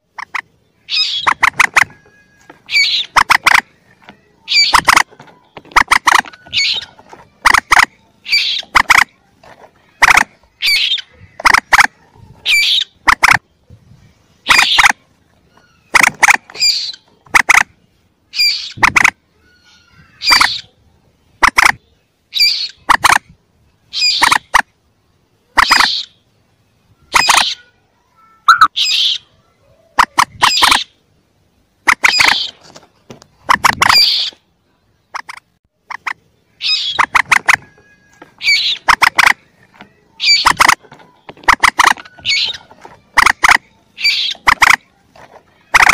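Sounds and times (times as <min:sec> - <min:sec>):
moorhen chick calls: 0:00.0 - 0:13.5, 0:14.4 - 0:20.8, 0:21.4 - 0:24.7, 0:25.4 - 0:27.7, 0:28.4 - 0:31.0, 0:31.8 - 0:32.6, 0:33.3 - 0:34.4, 0:35.1 - 0:45.0, 0:45.6 - 0:45.9.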